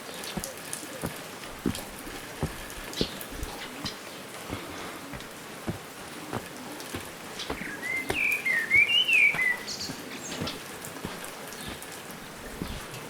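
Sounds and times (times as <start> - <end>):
footsteps crunching on dirt: 0.0 - 13.0
songbird warbling: 6.1 - 12.9.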